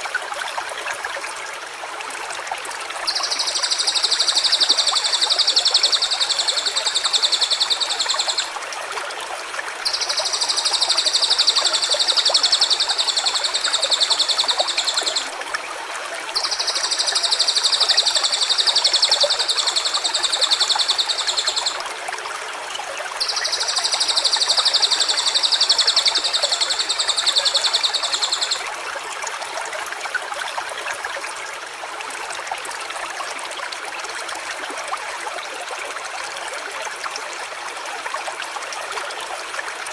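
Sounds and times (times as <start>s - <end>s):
fast high-pitched trills: 9.9s - 15.2s.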